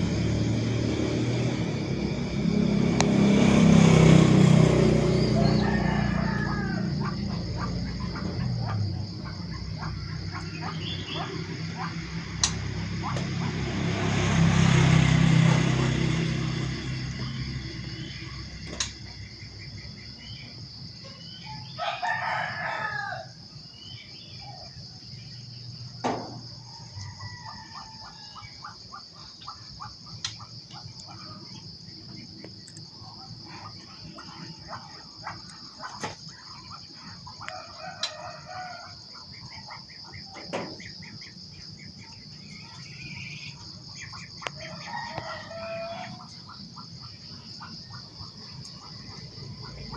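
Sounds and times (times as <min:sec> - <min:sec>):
loud rushing noise: 0:00.0 - 0:05.9
rooster crowing: 0:00.0 - 0:18.5, 0:21.1 - 0:24.7, 0:26.4 - 0:28.8, 0:33.7 - 0:35.4, 0:36.9 - 0:40.9, 0:42.0 - 0:49.9
small birds chirping: 0:01.5 - 0:13.8, 0:16.2 - 0:22.0, 0:23.5 - 0:25.9, 0:39.1 - 0:49.9.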